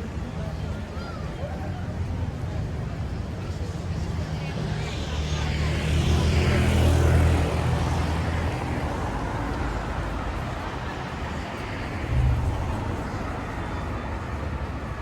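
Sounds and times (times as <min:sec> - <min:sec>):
city street noise: 0:00.0 - 0:15.0
passing vehicle engine hum: 0:04.0 - 0:15.0
short low rumble: 0:12.0 - 0:14.1.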